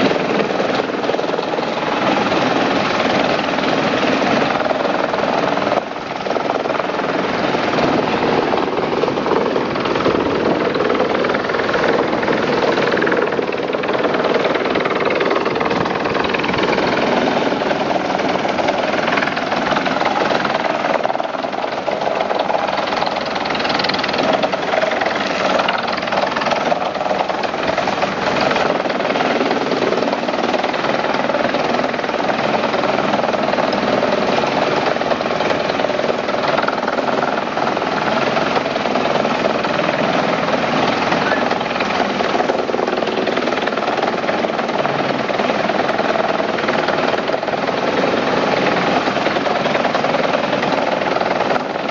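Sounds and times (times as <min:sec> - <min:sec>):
wood chipper running: 0:00.0 - 0:51.9.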